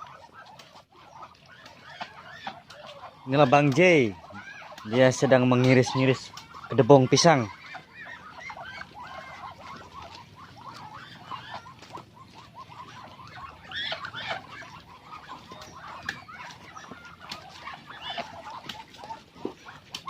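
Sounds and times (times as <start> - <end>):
chicks peeping: 0.0 - 20.0.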